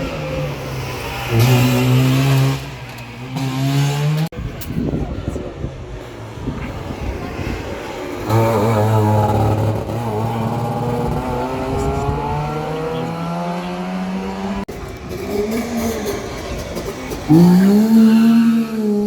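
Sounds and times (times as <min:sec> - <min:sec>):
rally car engine accelerating: 0:08.2 - 0:19.0.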